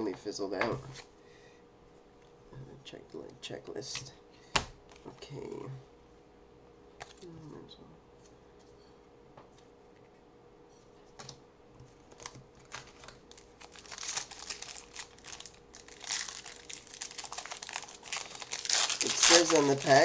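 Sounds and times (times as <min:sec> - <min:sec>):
foil wrapper crinkling: 0:12.0 - 0:20.0.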